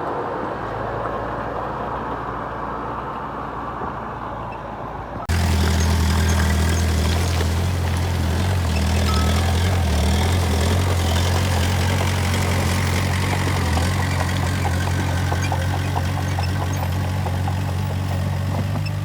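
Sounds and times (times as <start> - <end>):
heavy diesel engine running: 5.3 - 19.0.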